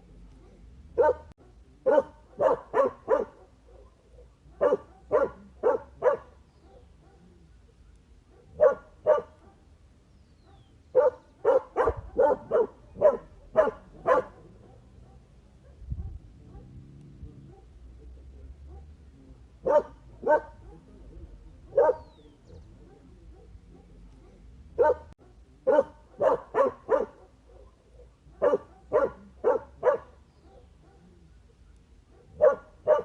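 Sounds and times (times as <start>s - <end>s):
dog barking: 0.3s - 7.5s, 8.3s - 9.8s, 10.4s - 19.0s, 19.6s - 33.0s.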